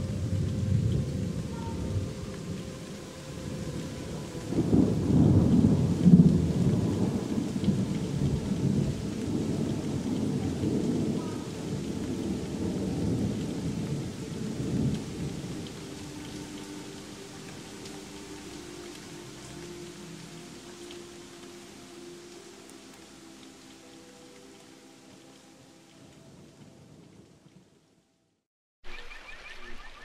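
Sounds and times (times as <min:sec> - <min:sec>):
thunder rolling: 0:00.0 - 0:16.6
steady rain: 0:00.0 - 0:28.4.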